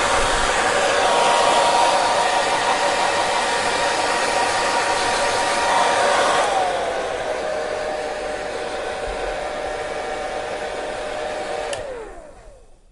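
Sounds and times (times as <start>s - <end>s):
hair dryer blowing with whine: 0.0s - 12.9s
hair dryer switch click: 11.6s - 12.0s.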